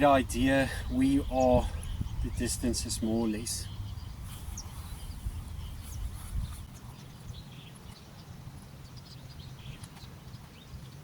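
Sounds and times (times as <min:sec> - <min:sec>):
wind rumbling on microphone: 0:00.0 - 0:11.0
faint bird chirps: 0:00.6 - 0:11.0.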